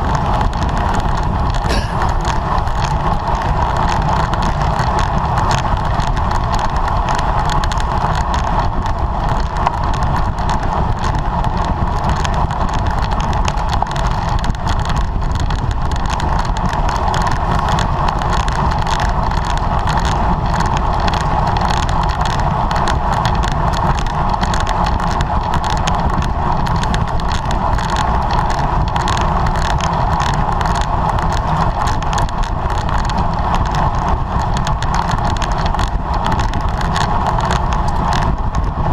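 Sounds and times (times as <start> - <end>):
wind and road noise from bicycle: 0.0 - 38.9.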